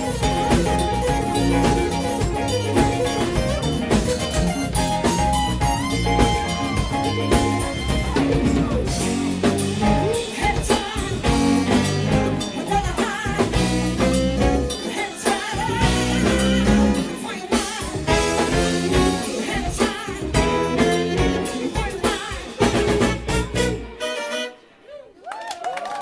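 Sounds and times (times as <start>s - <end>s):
drum kit: 0.0s - 24.4s
electric guitar: 0.0s - 24.6s
singer: 9.9s - 23.8s.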